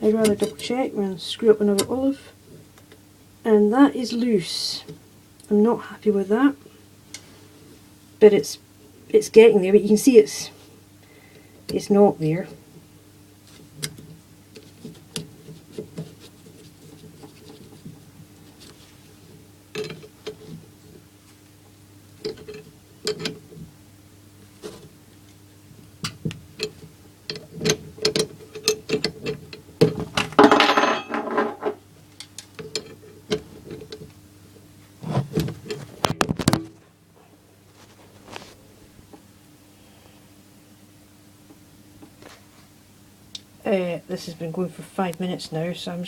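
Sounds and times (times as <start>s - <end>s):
steady low hum: 0.0s - 46.0s
scraping rustle: 13.4s - 19.4s, 37.6s - 38.7s.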